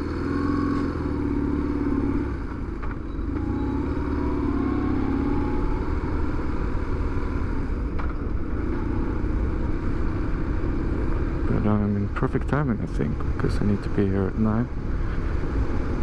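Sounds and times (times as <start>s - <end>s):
motorcycle engine accelerating: 0.0s - 7.8s.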